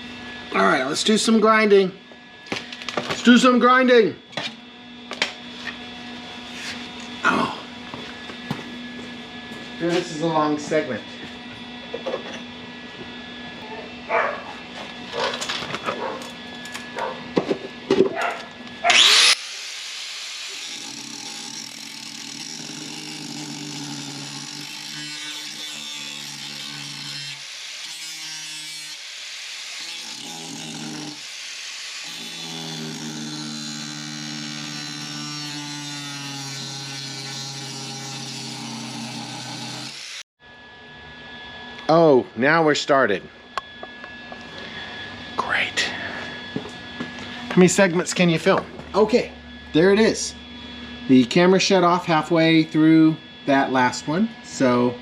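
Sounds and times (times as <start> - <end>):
grinder on steel: 18.7 - 40.2.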